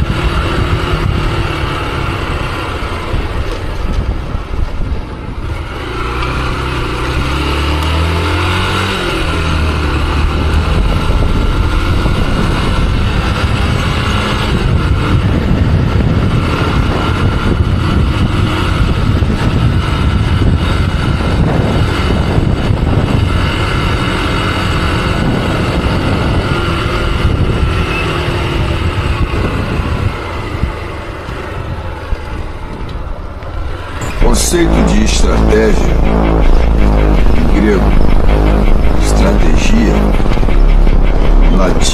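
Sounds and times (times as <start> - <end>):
motorcycle engine accelerating: 0.0 - 28.7, 33.8 - 41.9
wind and road noise: 0.0 - 41.9.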